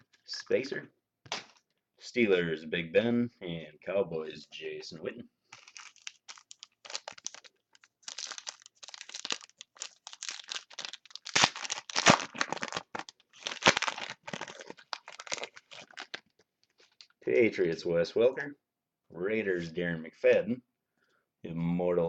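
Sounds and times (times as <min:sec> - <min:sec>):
wrapper crinkling and tearing: 0:05.5 - 0:17.2.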